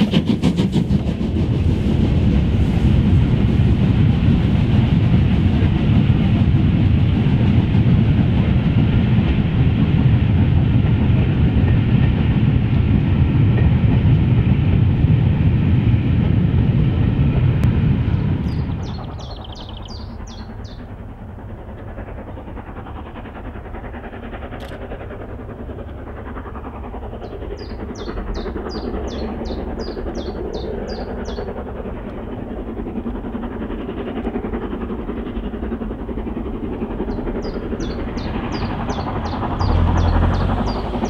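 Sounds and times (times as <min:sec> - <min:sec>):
distant train rumbling: 0:00.0 - 0:41.0
small bird singing: 0:18.5 - 0:20.9, 0:27.2 - 0:31.5, 0:37.1 - 0:41.0.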